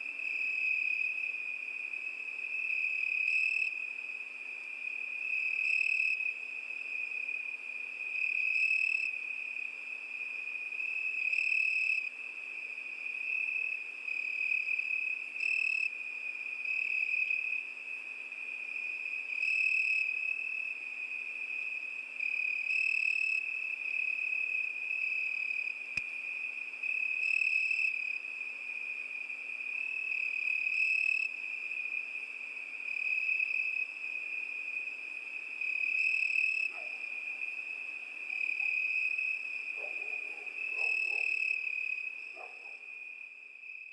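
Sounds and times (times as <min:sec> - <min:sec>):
cricket trilling: 0:35.6 - 0:43.9.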